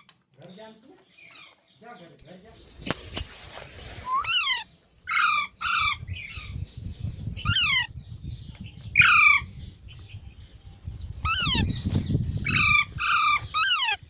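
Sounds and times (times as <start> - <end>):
parrot squawking: 4.0 - 6.5, 7.4 - 7.9, 11.2 - 11.7, 12.4 - 14.0.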